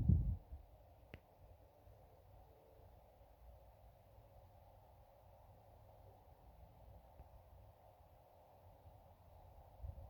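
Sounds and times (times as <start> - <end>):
low rumble on microphone: 0.0 - 0.6
faint click: 1.1 - 1.3.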